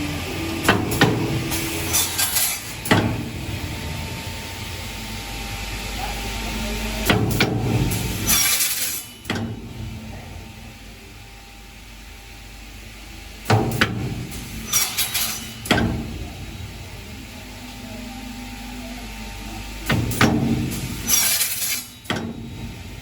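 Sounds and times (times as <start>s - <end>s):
cutting machine humming: 0.0s - 11.3s.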